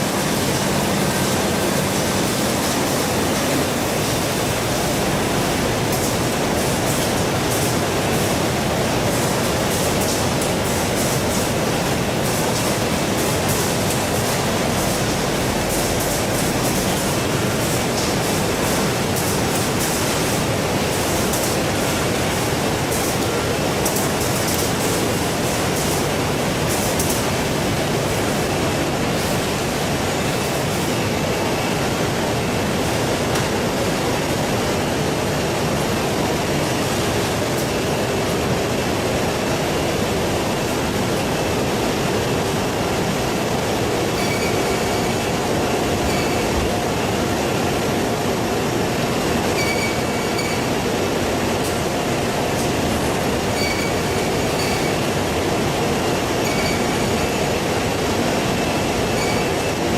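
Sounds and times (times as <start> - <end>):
faint short squeaks: 44.2 - 45.0, 46.1 - 46.5, 49.6 - 50.7, 53.5 - 55.0, 56.4 - 57.1, 59.1 - 59.6.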